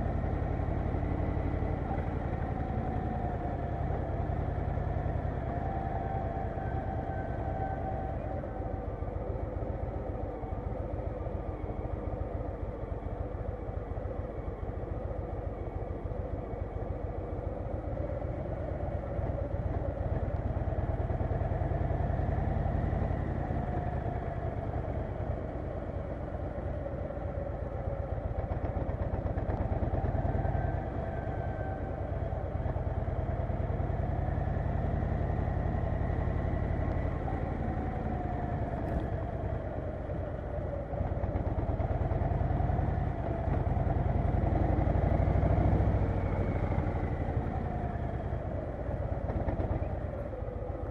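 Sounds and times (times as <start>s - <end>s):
motorcycle engine revving: 41.0s - 48.3s.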